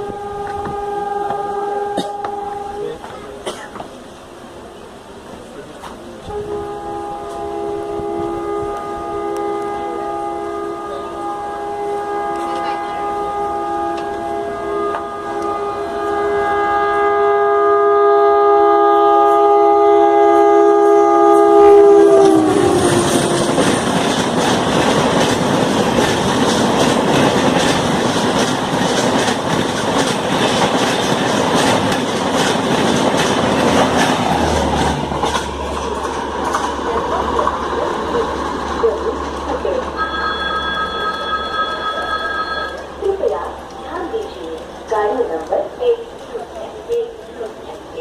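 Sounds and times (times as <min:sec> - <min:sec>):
locomotive air horn: 0:00.0 - 0:03.1, 0:06.2 - 0:23.9
train wheels clickety-clack: 0:22.0 - 0:39.9.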